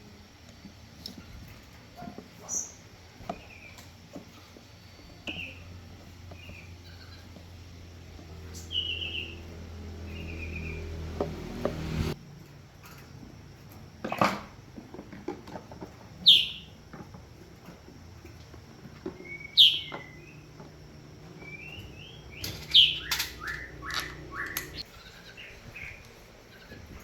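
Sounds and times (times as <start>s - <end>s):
soft bird chirps: 8.4s - 11.0s, 16.2s - 16.8s, 19.1s - 26.8s
bird calls sweeping downward: 21.4s - 24.8s
clicks: 22.4s - 24.8s.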